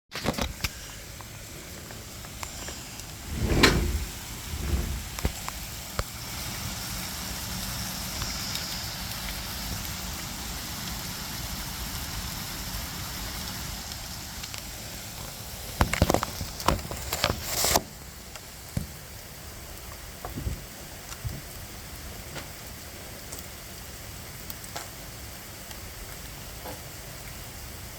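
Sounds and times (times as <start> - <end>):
steady rain: 0.2 - 27.9
heavy thump: 3.2 - 5.4.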